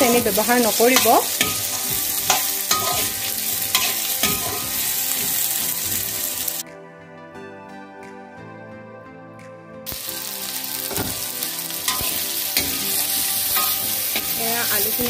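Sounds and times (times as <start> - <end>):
potatoes sizzling in hot oil: 0.0 - 6.6, 9.9 - 15.0
background music: 0.0 - 15.0
metal spatula scraping pan: 0.8 - 6.1, 11.9 - 15.0.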